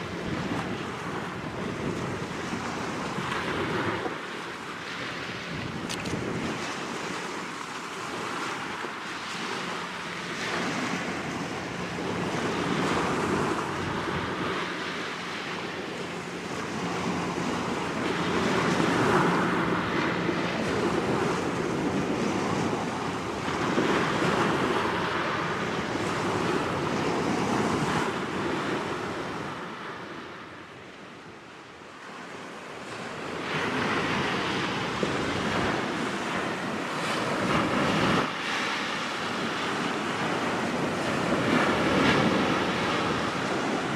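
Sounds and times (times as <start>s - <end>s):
wind on microphone: 0.0s - 31.4s, 32.0s - 43.9s
small waves washing on shore: 0.0s - 43.9s.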